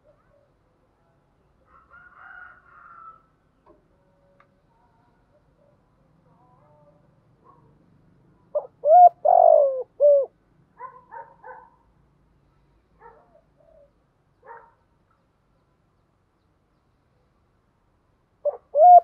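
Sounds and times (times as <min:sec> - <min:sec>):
dove cooing: 0:08.5 - 0:10.4, 0:18.4 - 0:19.0.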